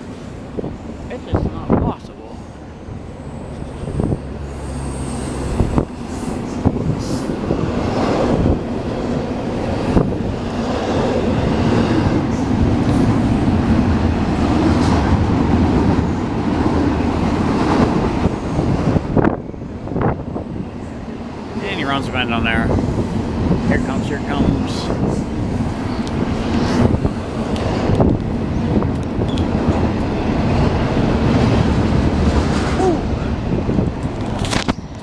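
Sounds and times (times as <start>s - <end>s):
train clanks: 0.0s - 35.0s
train wheels rumbling on rail: 0.0s - 35.0s.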